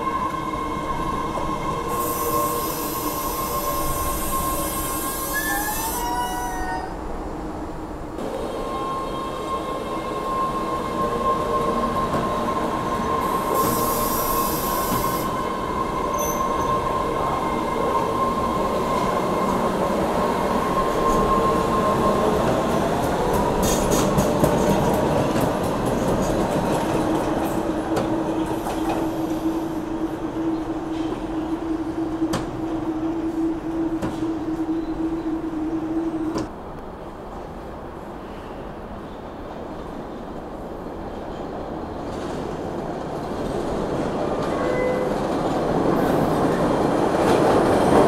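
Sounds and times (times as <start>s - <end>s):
train rumble: 0.0s - 38.4s
train wheels squealing: 1.8s - 7.0s, 8.6s - 15.4s, 16.0s - 17.4s, 44.5s - 45.2s.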